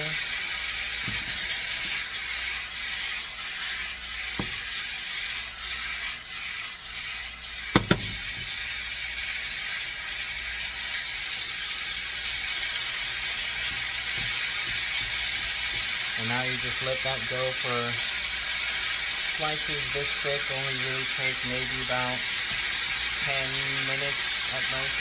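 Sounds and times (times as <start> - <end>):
chicken sizzling in oil: 0.0 - 25.0
knocks on skillet: 4.4 - 4.7, 7.7 - 8.5.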